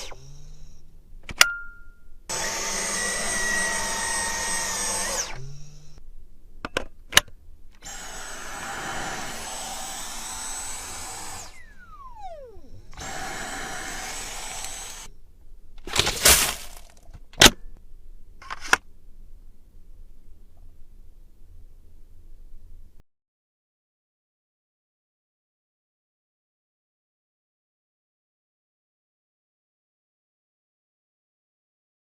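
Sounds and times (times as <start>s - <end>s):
vacuum cleaner motor whine: 2.3s - 6.0s, 7.8s - 15.1s.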